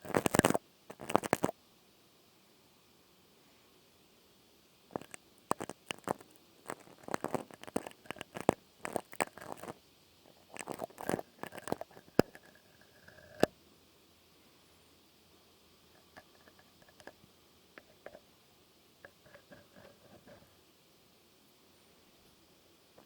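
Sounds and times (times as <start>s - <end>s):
sharp crackles and clicks: 0.0s - 1.6s, 4.9s - 13.5s.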